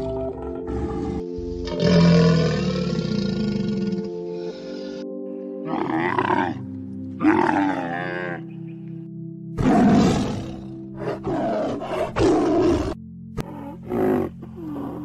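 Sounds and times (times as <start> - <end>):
background music: 0.0 - 15.0
animal growls: 0.6 - 5.0, 5.6 - 6.6, 9.6 - 15.0
animal roar: 0.7 - 5.0, 5.7 - 6.6, 7.2 - 8.4, 9.6 - 15.0.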